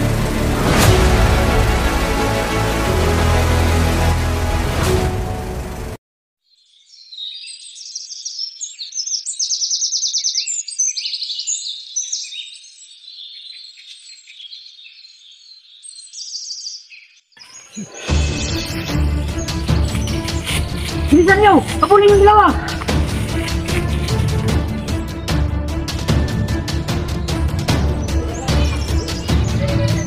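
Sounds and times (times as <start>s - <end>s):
music track: 0.0s - 6.0s, 18.0s - 30.0s
songbirds chirping and trilling: 6.5s - 30.0s.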